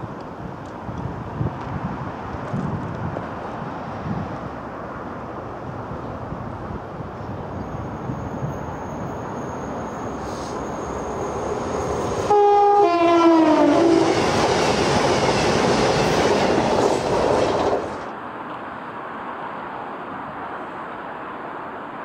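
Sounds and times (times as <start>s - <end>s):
train passing at speed: 0.0s - 22.0s
train horn: 12.2s - 14.4s.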